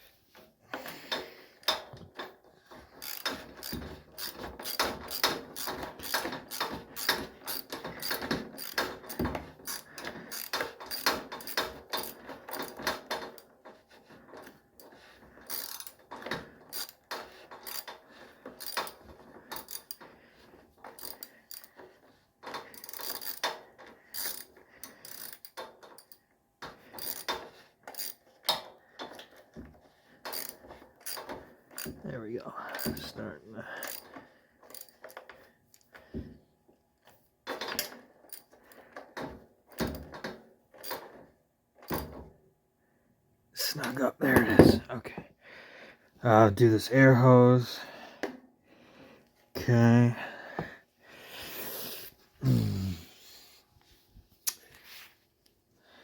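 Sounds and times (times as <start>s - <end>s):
socket ratchet clicking: 3.0s - 13.4s, 15.5s - 16.0s, 16.7s - 18.0s, 18.6s - 19.0s.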